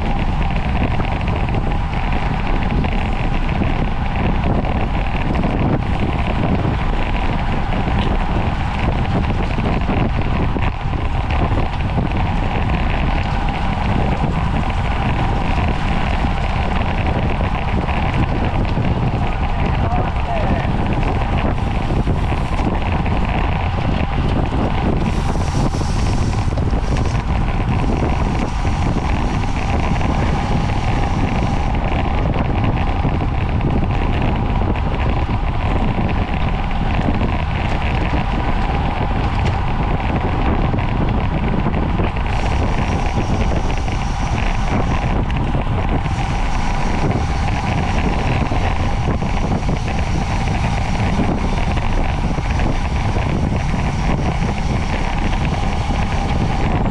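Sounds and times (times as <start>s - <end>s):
road noise: 0.0s - 56.9s
wind rushing over microphone: 0.0s - 56.9s.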